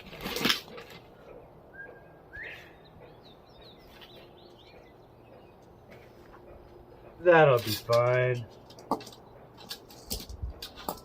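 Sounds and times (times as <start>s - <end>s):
small bird chirping: 1.7s - 6.1s.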